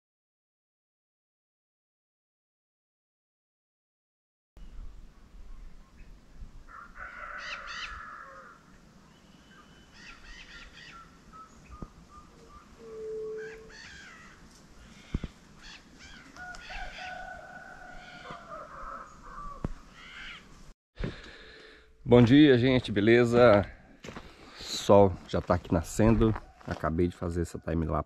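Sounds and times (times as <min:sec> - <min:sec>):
birds harsh cawing calls: 0:06.7 - 0:20.5.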